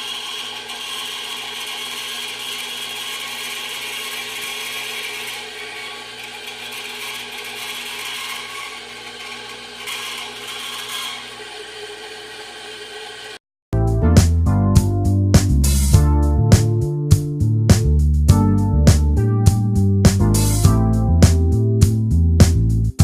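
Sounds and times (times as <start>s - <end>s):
band saw motor hum: 0.0s - 13.4s
saw blade cutting sheet metal: 0.0s - 13.4s.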